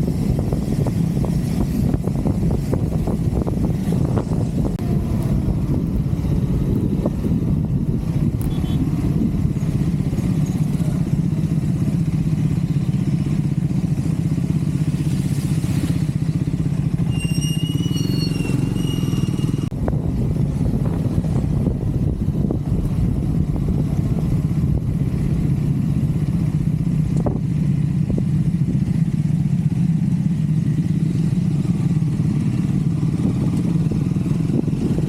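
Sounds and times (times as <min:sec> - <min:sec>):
motorcycle engine running: 0:00.0 - 0:35.0
high broken whistling tone: 0:17.0 - 0:19.7.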